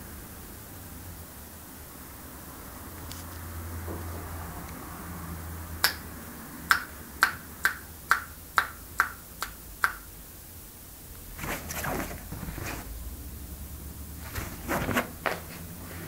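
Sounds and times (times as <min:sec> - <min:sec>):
soft scuffling: 0:11.2 - 0:13.0, 0:14.2 - 0:16.0.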